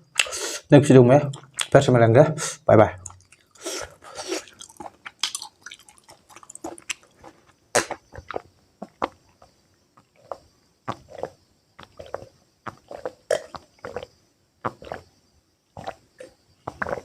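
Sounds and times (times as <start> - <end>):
person chewing food: 3.0 - 15.1, 15.8 - 17.0.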